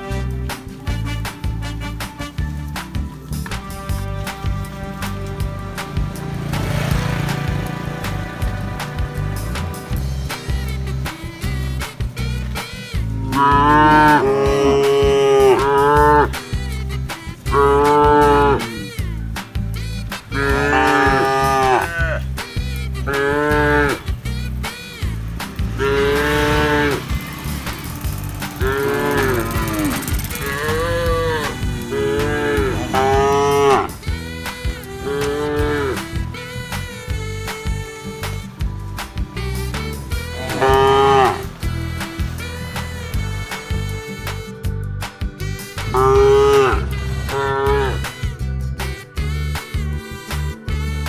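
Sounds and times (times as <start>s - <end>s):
background music with steady beat: 0.0s - 51.0s
cattle mooing: 13.2s - 16.4s, 17.4s - 19.0s, 20.3s - 22.3s, 23.0s - 24.1s, 25.8s - 27.1s, 28.5s - 36.5s, 40.1s - 41.5s, 45.8s - 48.1s.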